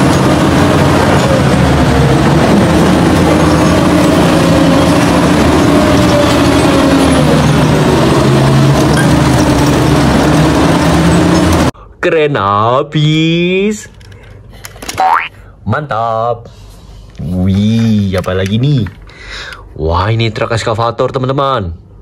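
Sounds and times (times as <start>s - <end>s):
forklift engine running: 0.0s - 11.8s.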